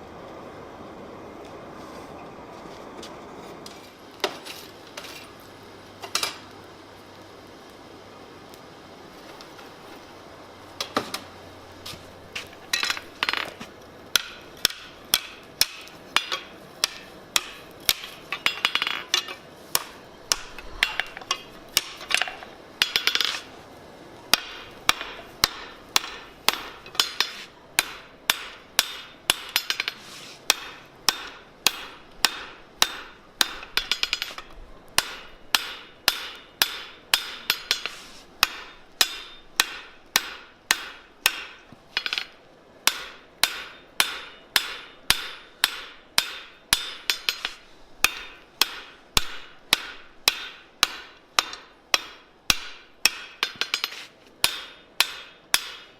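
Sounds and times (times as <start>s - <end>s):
hammer striking steel on anvil: 14.1s - 23.5s, 24.3s - 55.9s.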